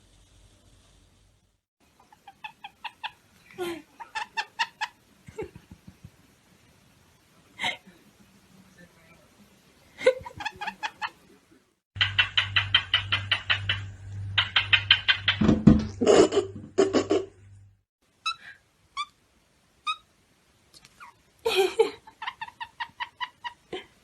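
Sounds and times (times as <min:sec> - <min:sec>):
parrot chirping: 0:02.1 - 0:03.3, 0:04.0 - 0:05.0, 0:10.2 - 0:11.2, 0:12.0 - 0:15.4, 0:18.2 - 0:19.2, 0:19.8 - 0:20.1, 0:22.1 - 0:23.7.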